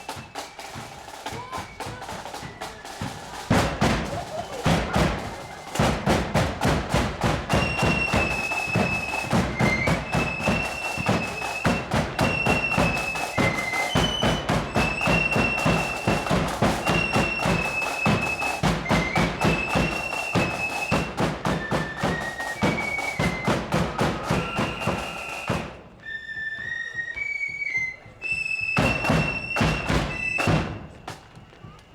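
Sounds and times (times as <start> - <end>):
rapid snare drumming: 0.0 - 25.9, 28.8 - 31.3
flutes playing melody: 0.0 - 31.9
bass drum beats: 3.0 - 12.6.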